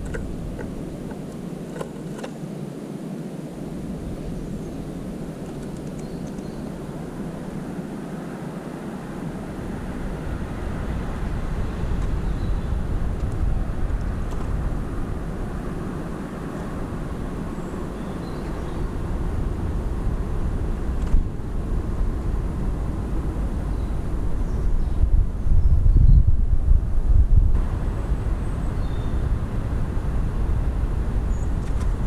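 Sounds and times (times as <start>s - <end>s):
low outdoor rumble: 0.0s - 2.3s, 3.7s - 32.0s
faint bird chirps: 5.9s - 6.7s.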